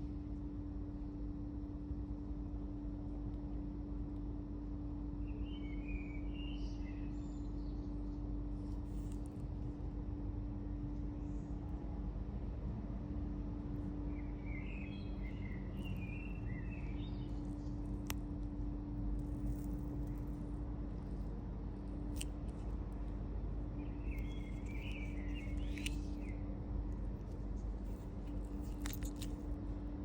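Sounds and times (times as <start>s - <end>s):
low hum: 6.2s - 30.0s.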